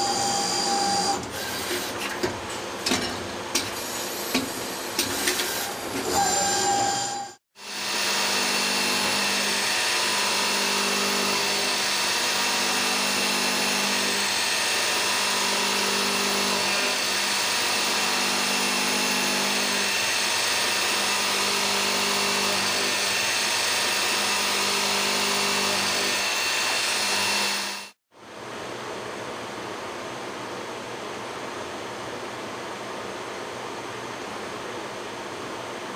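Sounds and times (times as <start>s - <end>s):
lathe machining: 5.1s - 28.0s.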